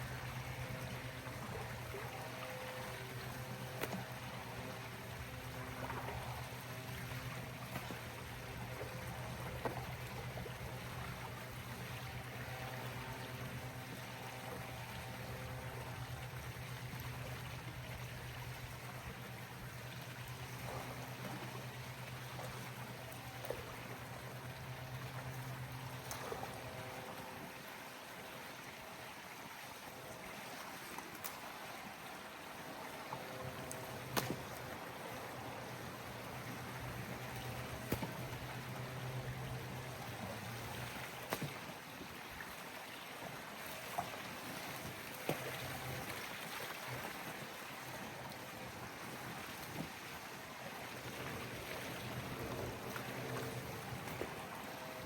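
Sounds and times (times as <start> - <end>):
low motor hum: 0.0 - 28.8, 31.5 - 41.8, 50.7 - 55.0.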